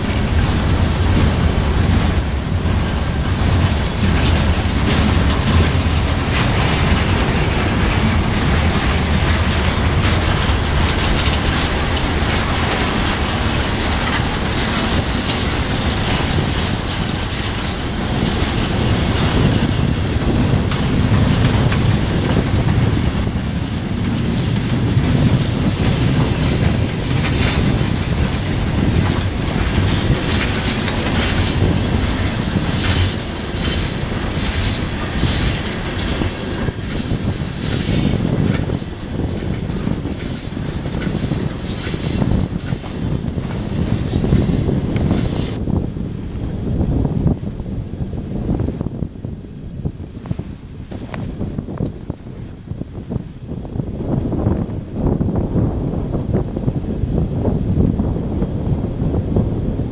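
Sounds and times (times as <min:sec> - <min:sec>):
wheel clacks over rail joints: 0:00.0 - 0:45.6
train wheels rumbling on rails: 0:00.0 - 0:59.9.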